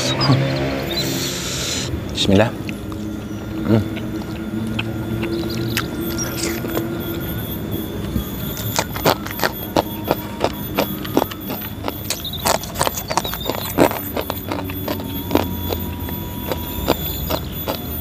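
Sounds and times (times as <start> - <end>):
crunchy chewing: 0.5 - 18.0.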